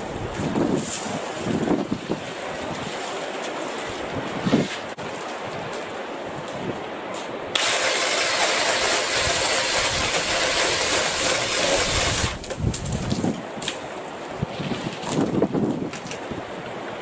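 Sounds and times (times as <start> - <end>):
wind noise on microphone: 0.0 - 17.0
cordless saw running: 7.6 - 12.4.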